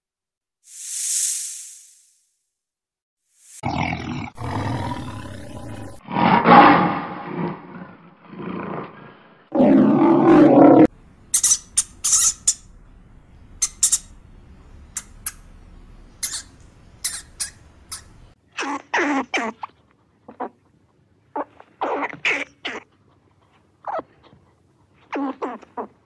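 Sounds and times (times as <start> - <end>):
lion roaring and growling: 3.6 - 10.9
hamster squeaking: 11.3 - 12.7, 13.6 - 14.2, 16.1 - 19.7.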